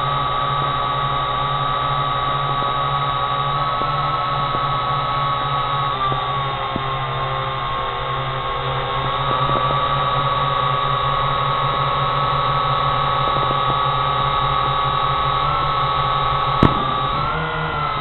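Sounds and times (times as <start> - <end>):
drone propellers whining: 0.0 - 18.0
faint pops: 16.5 - 18.0.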